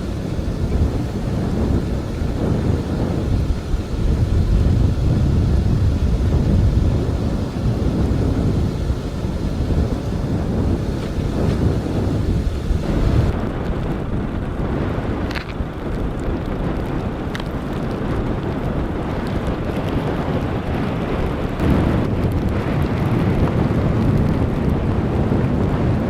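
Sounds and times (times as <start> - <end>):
blizzard wind buffeting microphone: 0.0 - 26.0.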